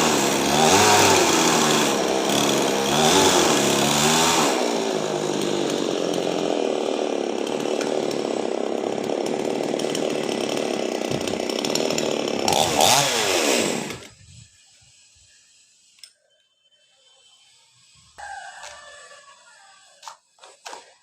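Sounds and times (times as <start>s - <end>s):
chainsaw cutting wood: 0.0s - 14.2s.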